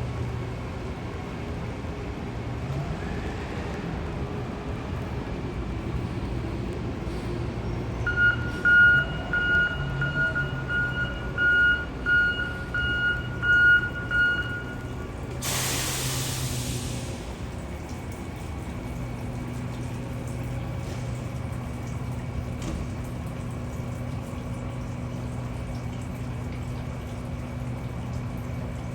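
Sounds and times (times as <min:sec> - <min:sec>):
low engine hum: 0:00.0 - 0:28.9
reversing beeper beeping: 0:08.1 - 0:15.1
loud hiss: 0:15.4 - 0:17.4.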